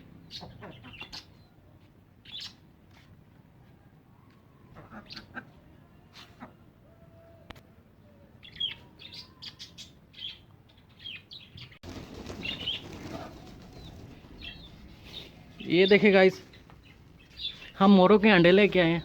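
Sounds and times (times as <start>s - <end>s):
small birds chirping: 0.0s - 3.2s, 8.0s - 19.0s.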